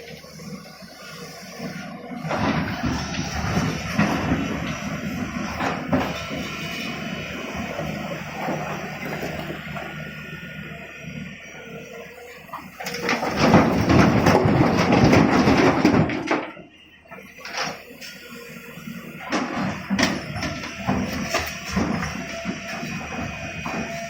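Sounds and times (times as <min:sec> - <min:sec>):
excavator engine running: 0:00.0 - 0:24.0
rattle of rock: 0:13.0 - 0:16.4
loud clatter of stones: 0:13.0 - 0:16.5.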